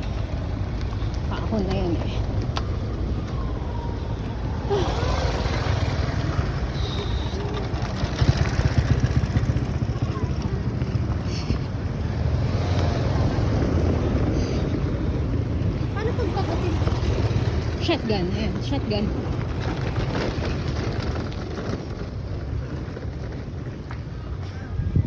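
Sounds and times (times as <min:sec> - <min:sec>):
vehicle passing close: 0:00.0 - 0:23.8
road traffic rumble: 0:00.0 - 0:25.0.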